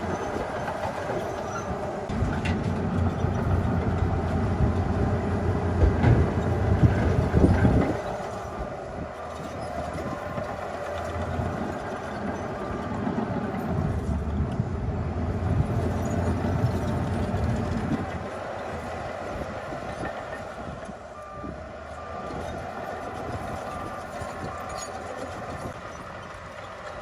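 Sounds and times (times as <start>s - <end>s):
crawler tracks clanking: 0.0s - 27.0s
diesel engine running: 0.0s - 27.0s.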